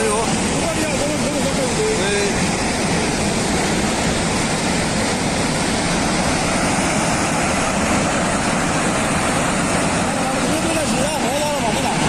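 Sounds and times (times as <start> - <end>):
rushing floodwater: 0.0 - 12.0.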